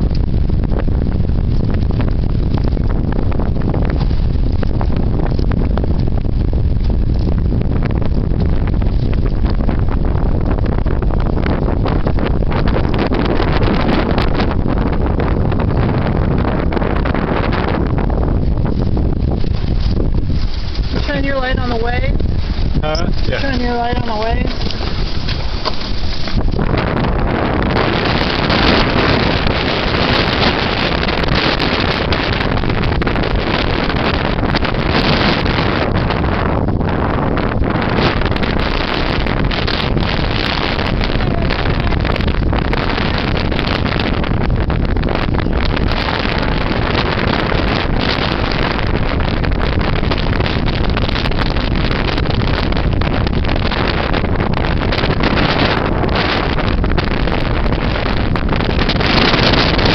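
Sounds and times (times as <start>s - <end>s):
strong wind on microphone: 0.0s - 59.9s.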